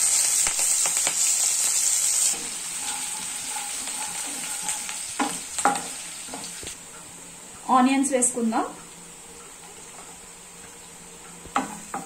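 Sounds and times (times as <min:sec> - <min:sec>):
garlic sizzling in hot oil: 0:00.0 - 0:12.0
spatula scraping and knocking pan: 0:02.3 - 0:06.8, 0:11.3 - 0:12.0.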